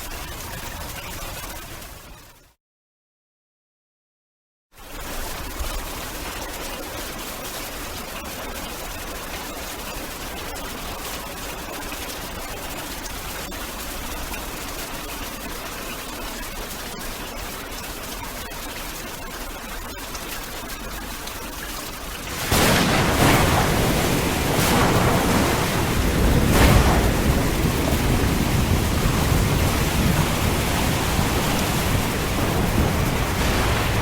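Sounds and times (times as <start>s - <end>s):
rain falling: 21.9s - 34.0s.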